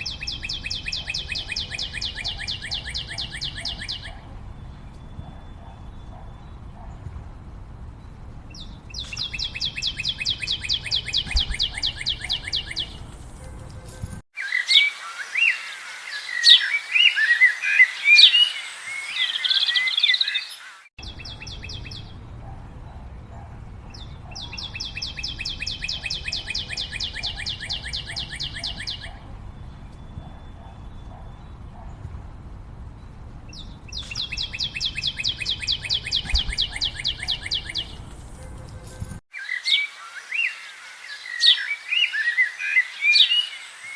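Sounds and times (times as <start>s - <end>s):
fast bird trill: 0.0s - 6.5s, 8.5s - 15.6s, 21.0s - 22.6s, 23.3s - 31.8s, 33.5s - 39.9s
bird chirps and whistles: 9.0s - 12.9s, 24.4s - 29.2s, 33.9s - 38.0s.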